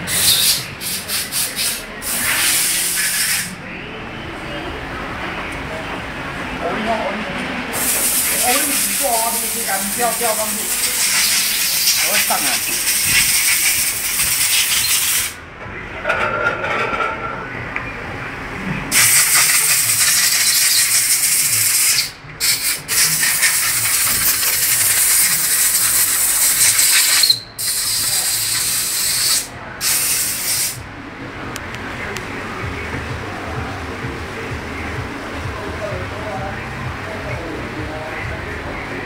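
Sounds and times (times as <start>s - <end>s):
pressurised gas hissing: 0.0s - 3.6s, 7.7s - 15.4s, 18.9s - 30.8s.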